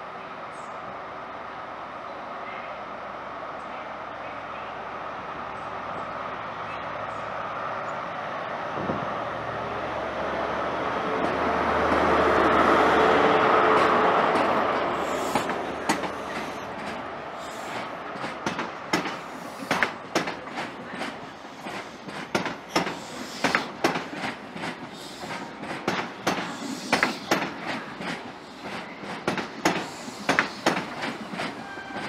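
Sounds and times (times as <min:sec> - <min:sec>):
low rumble of train: 0:00.0 - 0:32.0
train engine noise: 0:00.0 - 0:32.0
train wheels clicking over rail joints: 0:11.2 - 0:32.0.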